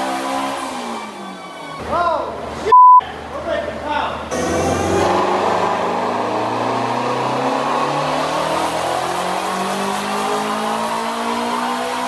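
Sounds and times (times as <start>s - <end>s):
car engine revving on dyno: 0.0s - 1.8s, 4.3s - 12.0s.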